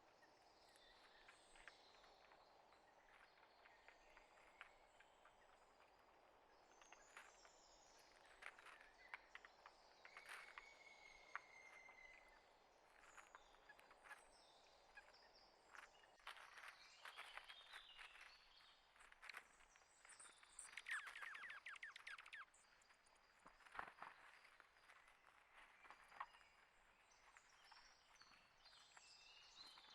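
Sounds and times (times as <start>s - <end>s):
small birds chirping: 0.0s - 29.9s
rapid bird trill: 20.7s - 22.5s.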